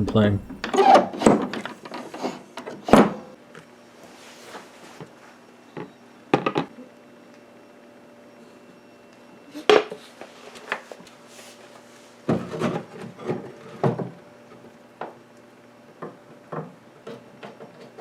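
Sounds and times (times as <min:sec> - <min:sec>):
wood scraping and rubbing: 0:00.0 - 0:03.2.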